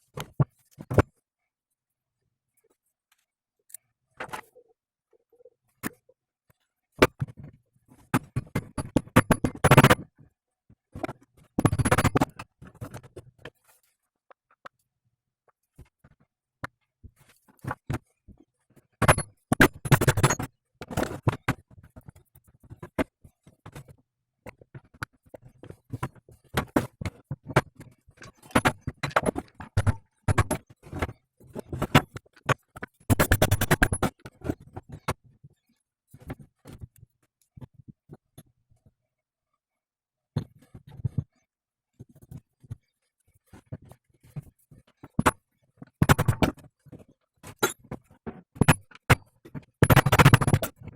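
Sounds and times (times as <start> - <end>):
hand tools clicking on metal parts: 49.8 - 50.7.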